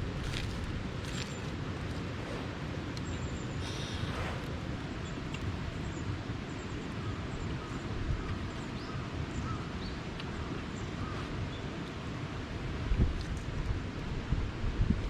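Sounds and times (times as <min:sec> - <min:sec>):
low rumble: 0:00.0 - 0:06.0
faint bird calls: 0:03.0 - 0:06.1.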